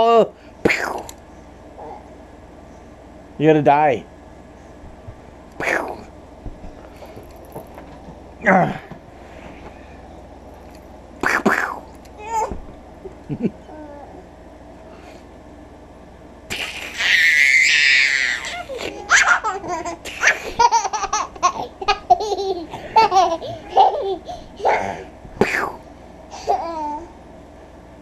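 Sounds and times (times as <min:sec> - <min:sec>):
young child laughing: 0:16.5 - 0:25.0.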